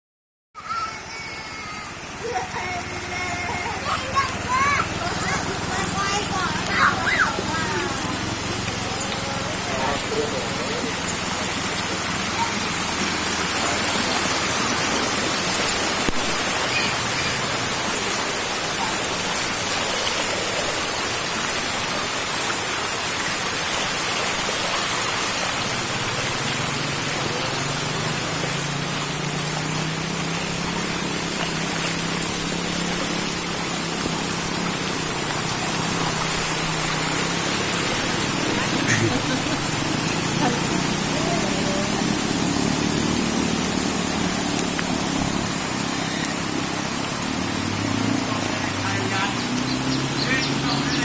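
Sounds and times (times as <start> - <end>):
heavy rain falling: 0.6 - 51.0.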